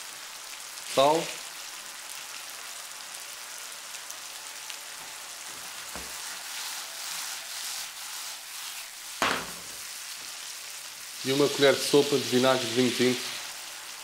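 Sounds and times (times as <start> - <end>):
food sizzling in a frying pan: 0.0 - 14.0
pan tossing thump: 9.2 - 9.8.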